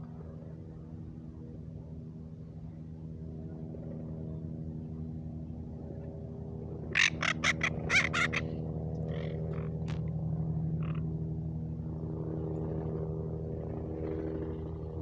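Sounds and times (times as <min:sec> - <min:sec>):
low mechanical hum: 0:00.0 - 0:15.0
parrots squawking: 0:07.0 - 0:08.4.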